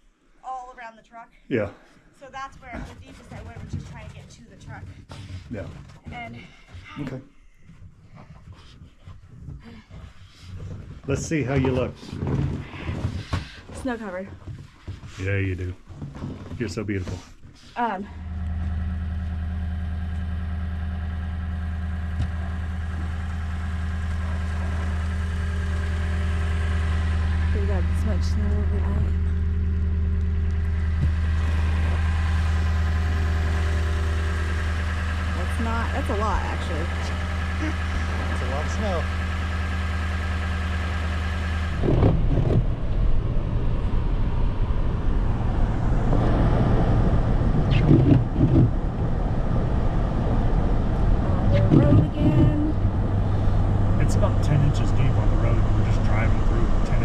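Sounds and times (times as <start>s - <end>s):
truck engine idling: 16.6s - 57.0s.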